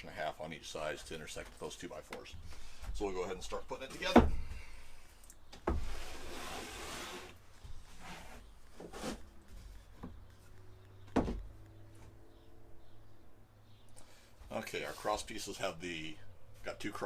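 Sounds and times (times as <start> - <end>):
wood sliding and scraping: 5.6 - 12.2.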